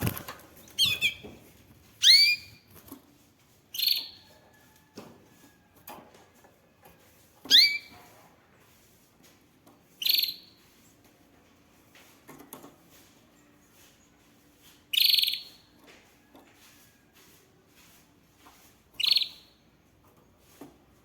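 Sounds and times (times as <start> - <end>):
canary chirping: 0.0 - 1.4, 2.0 - 2.8, 3.7 - 4.3, 7.4 - 8.0, 10.0 - 10.6, 14.9 - 15.8, 19.0 - 19.6.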